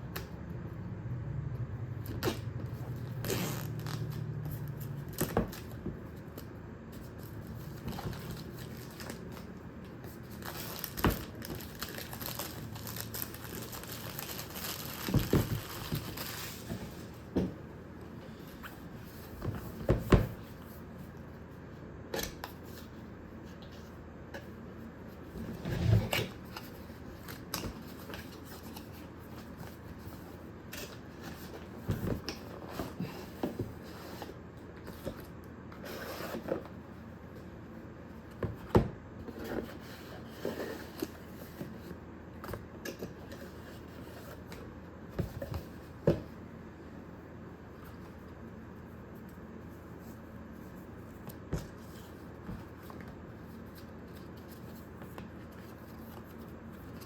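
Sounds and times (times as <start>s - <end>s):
rustling cardboard and plastic: 2.1s - 17.7s.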